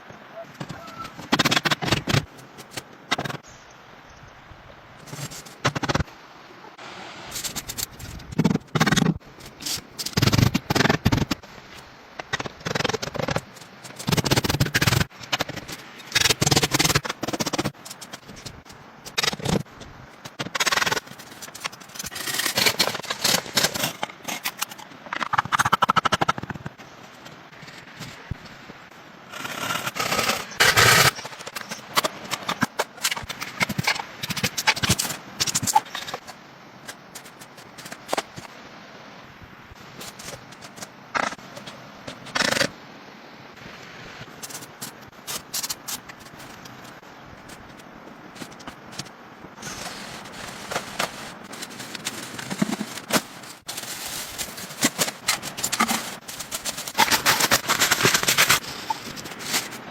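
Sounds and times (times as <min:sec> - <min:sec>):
rapid clattering knocks and crackles: 0:49.7 - 0:59.9.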